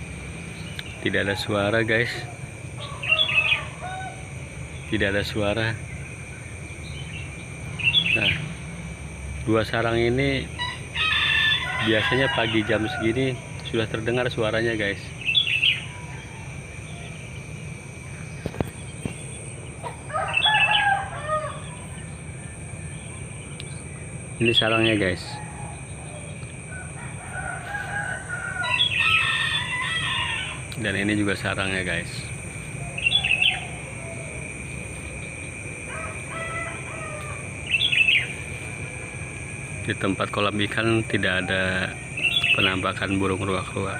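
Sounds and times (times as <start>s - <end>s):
rooster crowing: 0.0s - 5.4s, 10.5s - 18.6s, 19.8s - 23.4s, 24.5s - 43.9s
high insect drone: 0.0s - 43.9s
short high bird calls: 32.8s - 34.3s, 35.9s - 38.4s.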